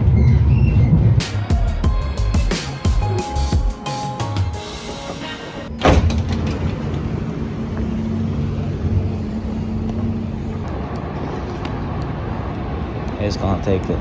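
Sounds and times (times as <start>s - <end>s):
vehicle engine rumble: 5.7s - 14.0s.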